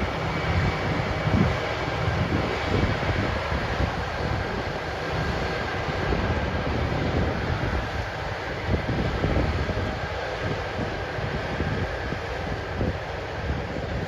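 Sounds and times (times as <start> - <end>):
harvest machinery rumbling: 0.0 - 9.0
wind buffeting microphone: 0.0 - 14.0.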